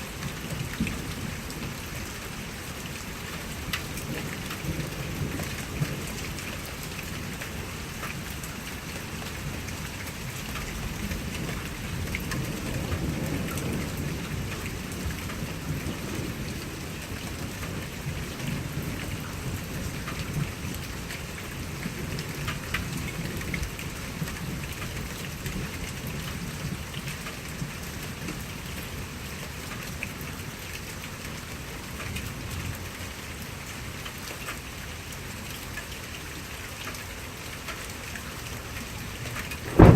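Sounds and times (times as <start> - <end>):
rain drops ticking: 0.0 - 39.9
thunder rumbling: 39.6 - 39.9.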